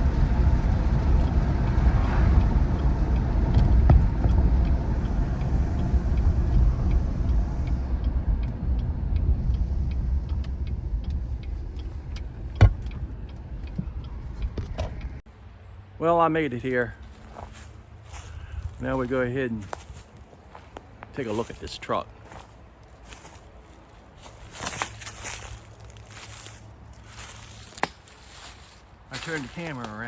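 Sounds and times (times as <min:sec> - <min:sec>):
faint regular ticking: 0:00.0 - 0:15.2
road and engine rumble: 0:00.0 - 0:30.0.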